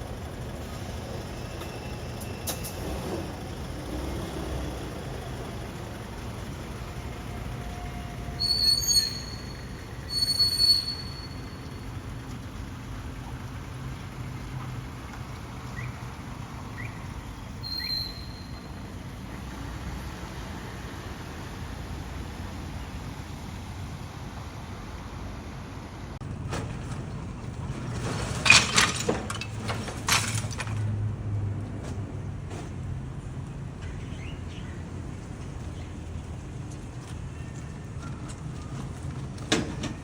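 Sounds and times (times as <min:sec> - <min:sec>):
dump truck engine running: 0:00.0 - 0:20.6, 0:23.8 - 0:33.4
loud high-pitched squeals: 0:07.0 - 0:11.9.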